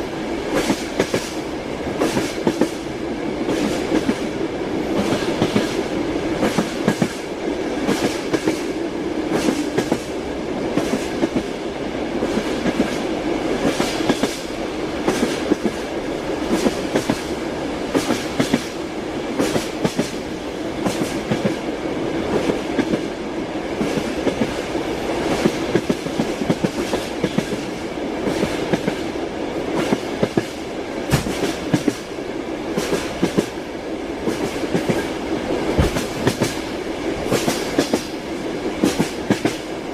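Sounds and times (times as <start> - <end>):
train running rumble: 0.0 - 39.9
train wheels clacking on rail joints: 0.5 - 1.4, 2.0 - 2.9, 4.9 - 11.5, 12.2 - 18.8, 19.4 - 21.7, 25.2 - 32.1, 32.7 - 33.6, 34.2 - 39.7.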